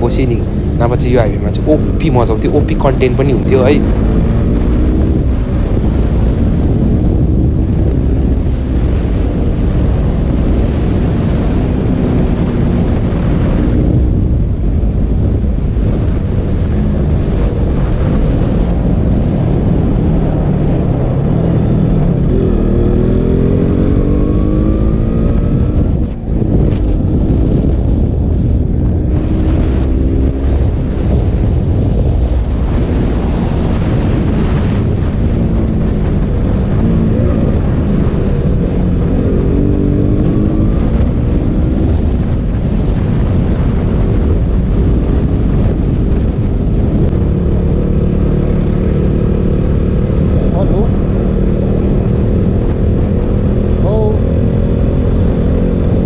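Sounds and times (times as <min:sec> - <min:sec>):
wind rumble on microphone: 0:00.0 - 0:56.0
motorcycle engine revving: 0:15.8 - 0:56.0.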